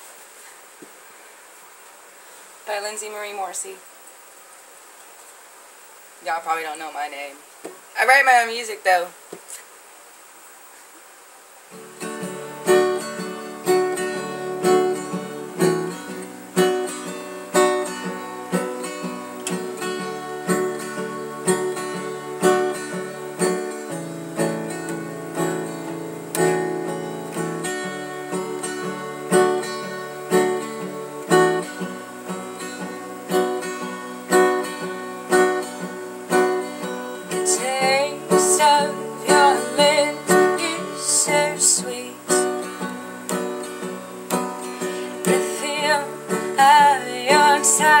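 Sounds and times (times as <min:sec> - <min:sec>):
acoustic guitar strumming: 0:11.7 - 0:48.0.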